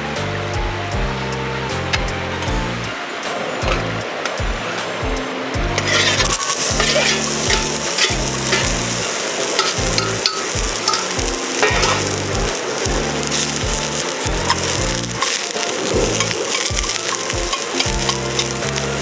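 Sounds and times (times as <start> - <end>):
background music with bass line: 0.0 - 19.0
food sizzling in a pan: 5.6 - 19.0.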